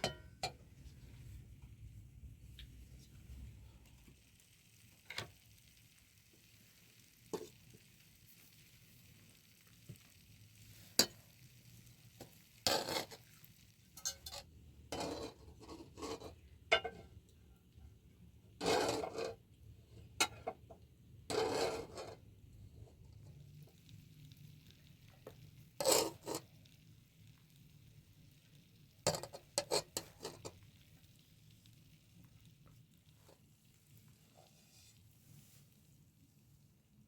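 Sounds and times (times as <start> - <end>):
utensil scraping a pan: 7.3 - 7.6, 10.8 - 11.2, 12.2 - 17.1, 18.6 - 19.4, 21.3 - 22.2, 25.3 - 26.5, 29.1 - 30.6, 34.3 - 35.6.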